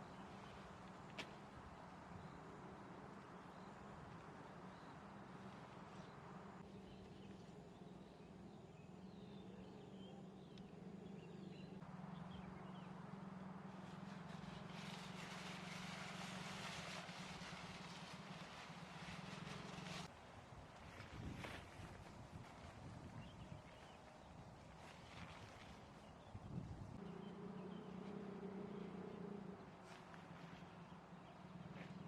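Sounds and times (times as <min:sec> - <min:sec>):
small birds chirping: 0:04.7 - 0:15.7, 0:26.0 - 0:32.0
strong wind through trees: 0:14.0 - 0:24.6, 0:26.0 - 0:29.6.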